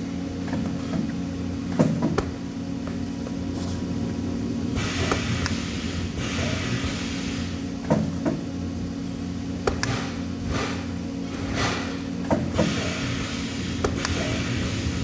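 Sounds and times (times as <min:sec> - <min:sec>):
low machine hum: 0:00.0 - 0:15.0
welding hiss: 0:04.7 - 0:07.7, 0:12.5 - 0:15.0.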